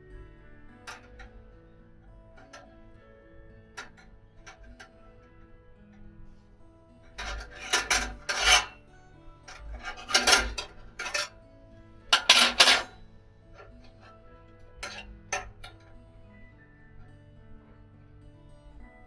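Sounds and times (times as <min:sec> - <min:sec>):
quiet background music: 0:00.0 - 0:19.0
rasping scrapes: 0:07.1 - 0:08.8, 0:09.5 - 0:11.3, 0:12.1 - 0:13.0.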